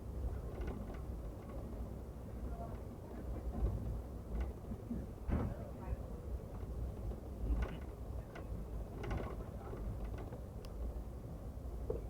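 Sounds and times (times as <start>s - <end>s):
clicks and creaks from train car: 0.0s - 11.1s, 11.7s - 12.0s
train car rolling on track: 0.0s - 12.0s.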